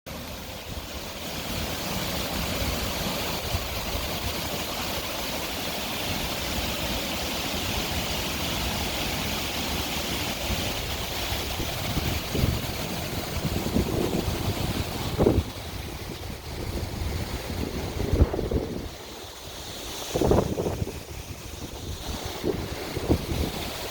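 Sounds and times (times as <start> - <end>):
waterfall rushing: 0.1 - 23.9
wind buffeting microphone: 10.3 - 23.9.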